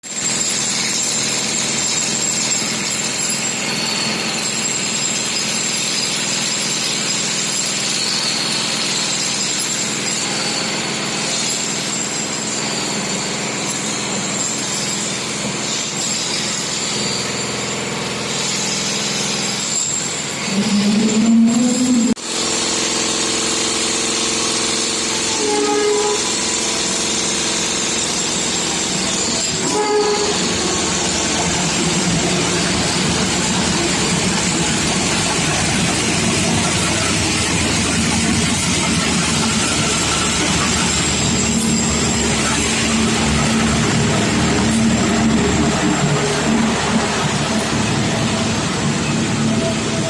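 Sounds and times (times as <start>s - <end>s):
steady engine noise: 15.0s - 50.0s
droning tone rising in pitch: 20.4s - 22.2s, 29.0s - 50.0s.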